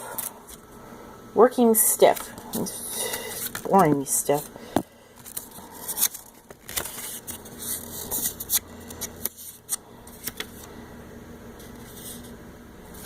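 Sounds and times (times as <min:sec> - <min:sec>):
packaging rustling: 0:05.2 - 0:10.7.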